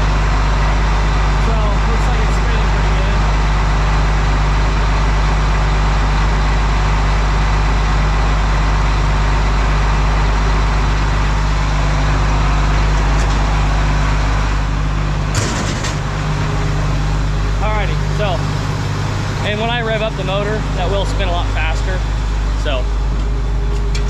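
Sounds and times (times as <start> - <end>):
diesel engine idling: 0.0 - 24.0
sharp clunk: 15.3 - 16.0.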